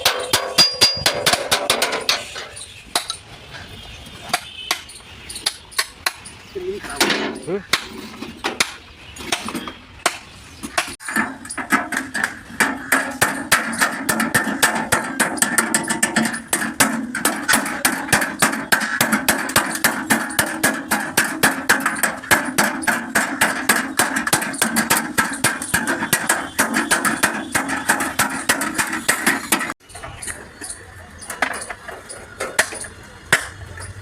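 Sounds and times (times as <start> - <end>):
hammering on sheet steel panel: 0.0 - 2.3, 7.7 - 29.8.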